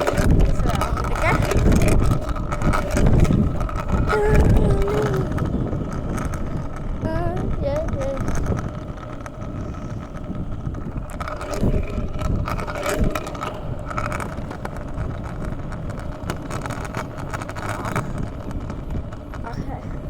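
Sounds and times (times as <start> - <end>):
wheels rolling on wet pavement: 0.0 - 20.0
wind rushing over microphone: 0.0 - 20.0.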